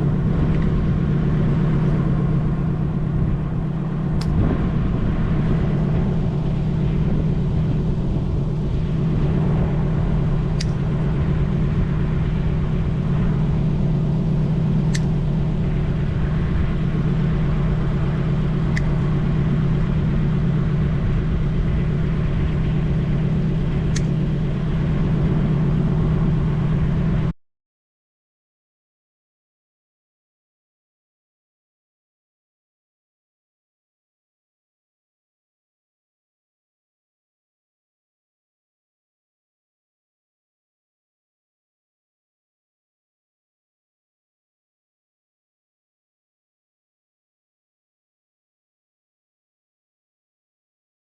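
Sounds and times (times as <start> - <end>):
engine running steadily: 0.0 - 27.3.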